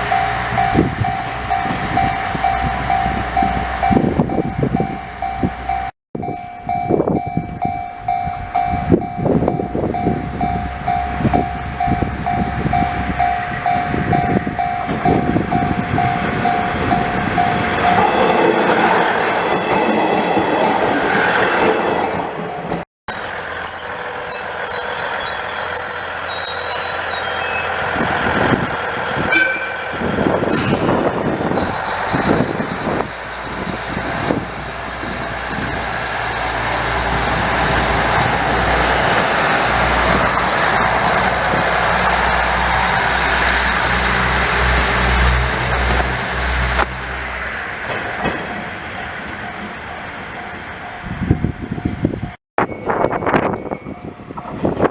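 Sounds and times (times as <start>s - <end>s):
short high-pitched tones: 23.1s - 28.0s, 29.3s - 30.0s
train wheels rumbling: 24.4s - 53.6s.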